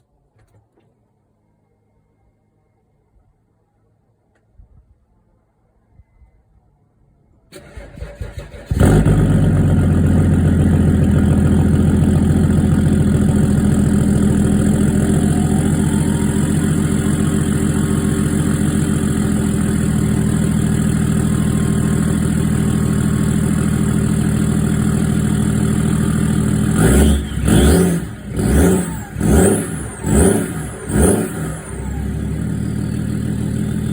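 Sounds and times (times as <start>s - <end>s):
diesel engine idling loudly: 8.8s - 33.9s.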